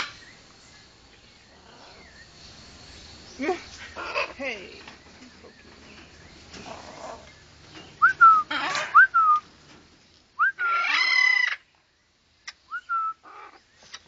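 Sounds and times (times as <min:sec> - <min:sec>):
parrots whistling calls: 0:08.0 - 0:09.4, 0:10.4 - 0:11.6
parrot raspy call: 0:08.4 - 0:09.0, 0:10.5 - 0:11.6
parrot squawk: 0:08.5 - 0:09.0, 0:10.6 - 0:11.6.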